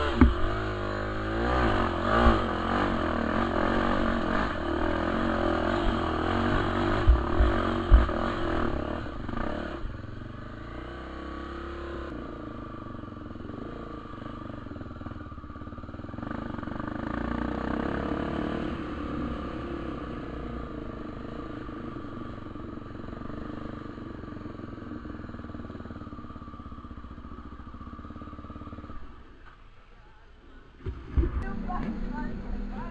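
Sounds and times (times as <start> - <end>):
sharp knocks: 0.0 - 0.7
motorcycle engine revving: 0.0 - 29.4, 30.8 - 32.9.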